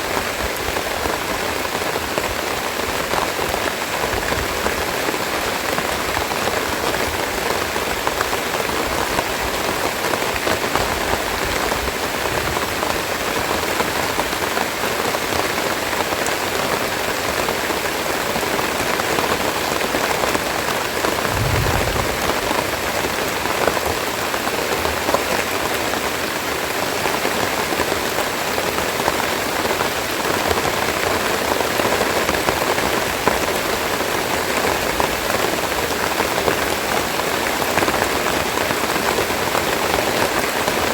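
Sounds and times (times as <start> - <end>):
low thump: 21.2 - 22.9.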